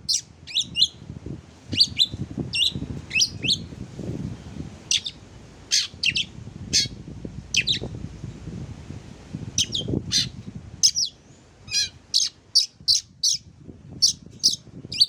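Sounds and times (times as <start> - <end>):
faint low rumble: 0.0 - 12.2
bird singing chirps and whistles: 0.1 - 1.0, 1.8 - 3.7, 7.6 - 7.9, 9.6 - 13.4.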